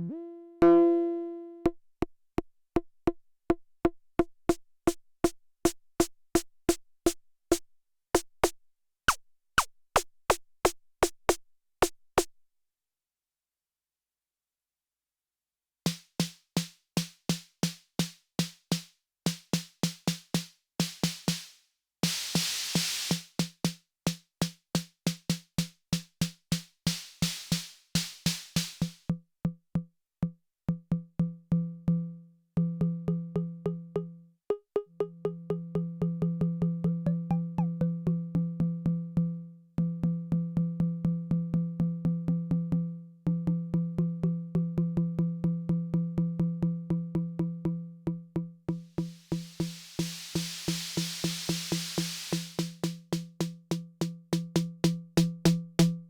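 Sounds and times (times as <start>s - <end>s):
drum machine snare hits: 15.9s - 29.1s, 48.7s - 56.0s.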